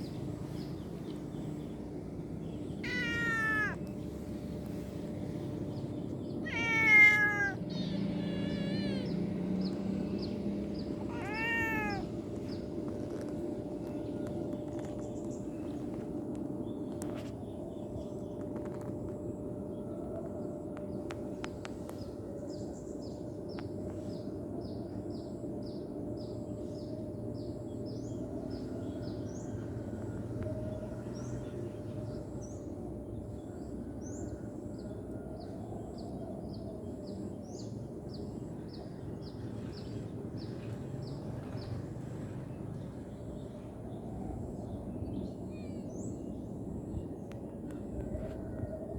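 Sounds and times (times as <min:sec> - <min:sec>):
low background noise: 0:00.0 - 0:48.9
small bird chirping: 0:06.5 - 0:12.7.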